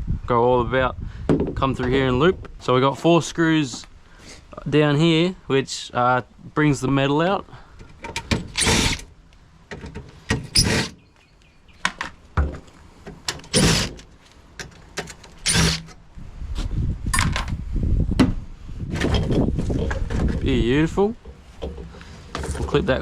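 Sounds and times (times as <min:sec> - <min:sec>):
rough scraping on metal: 0:10.3 - 0:11.0, 0:13.4 - 0:14.1, 0:15.4 - 0:16.0
screws removed from sheet metal: 0:15.4 - 0:16.0.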